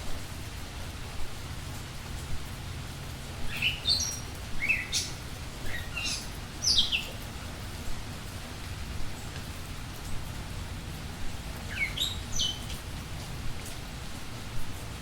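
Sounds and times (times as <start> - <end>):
small birds chirping: 3.5 - 7.3, 11.6 - 12.8.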